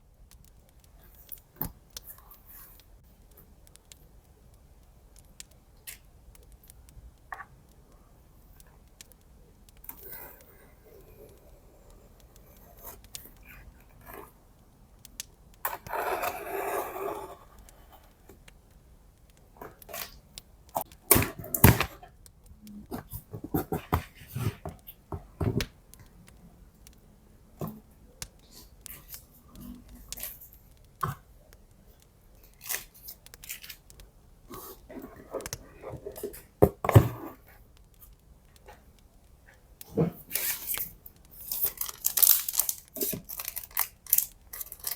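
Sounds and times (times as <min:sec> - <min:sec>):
paper and plastic packaging rustling: 0:31.8 - 0:38.9, 0:39.8 - 0:44.9.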